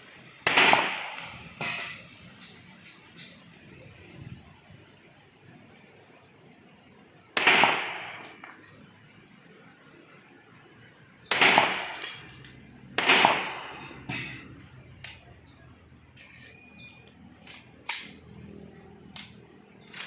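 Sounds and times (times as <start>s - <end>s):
loud gunshots with ringing tail: 0.4s - 2.0s, 7.4s - 8.5s, 11.3s - 12.2s, 12.9s - 14.4s.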